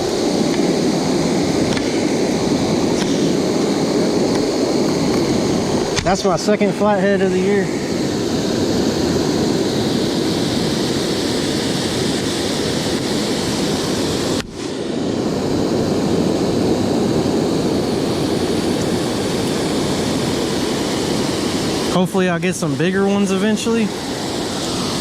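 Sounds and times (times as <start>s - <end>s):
waterfall roar: 18.0s - 25.0s.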